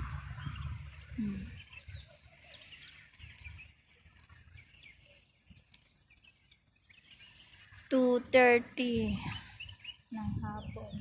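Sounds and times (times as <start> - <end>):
low rumble: 0.0 - 1.8
birds chirping: 0.0 - 11.0.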